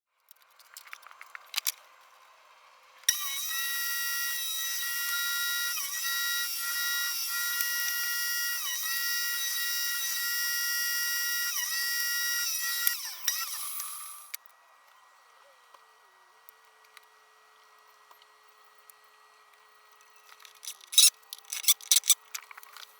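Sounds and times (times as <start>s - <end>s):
circular saw motor whining: 3.1s - 14.4s.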